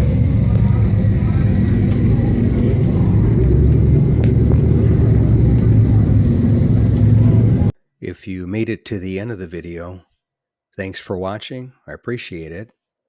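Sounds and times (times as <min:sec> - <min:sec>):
vehicle engine rumbling: 0:00.0 - 0:07.7.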